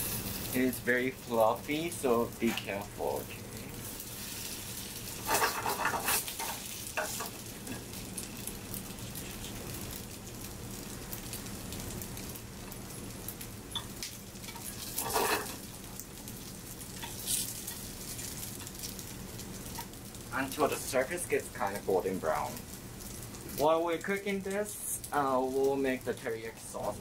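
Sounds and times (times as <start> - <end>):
patties sizzling in a frying pan: 0.0 - 27.0
turner scraping and knocking pan: 5.2 - 7.4, 14.4 - 15.6.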